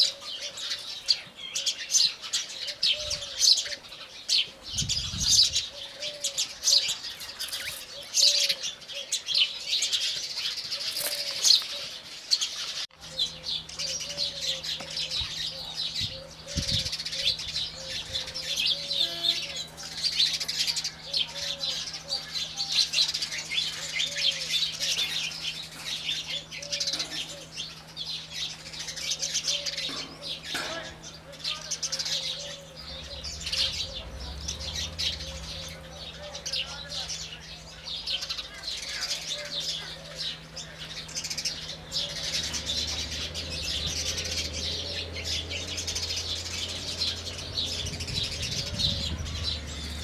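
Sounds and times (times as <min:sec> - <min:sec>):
sparrows chirping: 0:00.0 - 0:50.0
steady low hum: 0:12.7 - 0:50.0.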